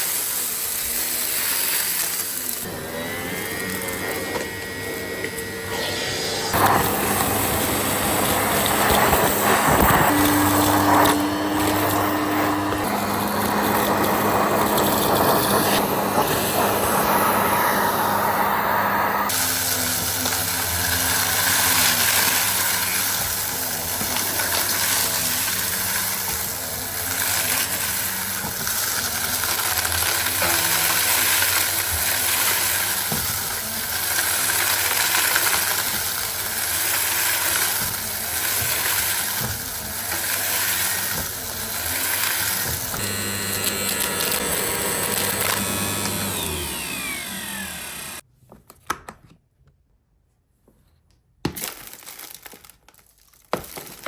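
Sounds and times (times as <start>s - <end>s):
vacuum cleaner hissing: 0.0s - 48.2s.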